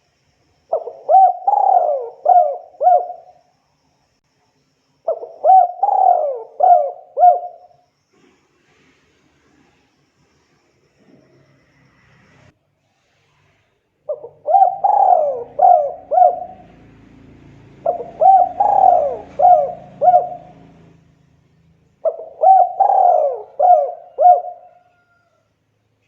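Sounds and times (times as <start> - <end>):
dove cooing: 0.7 - 3.4, 5.1 - 7.8, 14.1 - 21.0, 22.0 - 25.4.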